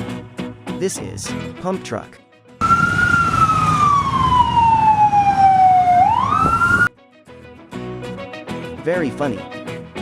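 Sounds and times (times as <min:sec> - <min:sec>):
fire truck siren wailing: 0:02.6 - 0:06.9.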